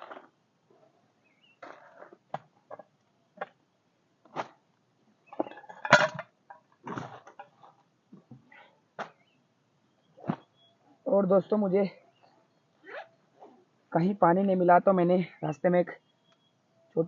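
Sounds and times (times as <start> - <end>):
camping gear knocking and clinking: 5.3 - 9.3.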